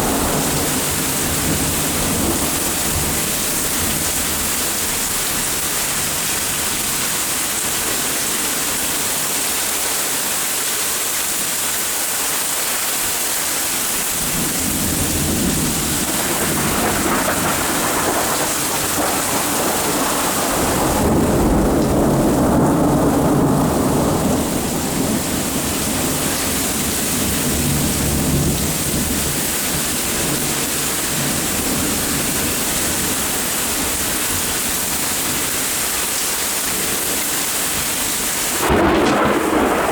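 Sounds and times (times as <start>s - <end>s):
thunder rolling: 0.0s - 4.6s, 14.2s - 34.5s, 38.5s - 39.9s
steady rain: 0.0s - 39.9s.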